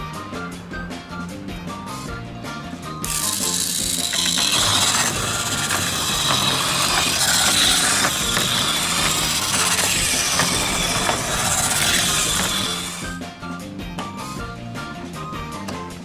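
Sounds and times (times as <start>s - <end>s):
toy car motor whirring: 3.0s - 13.2s
wheels clicking: 3.0s - 13.2s.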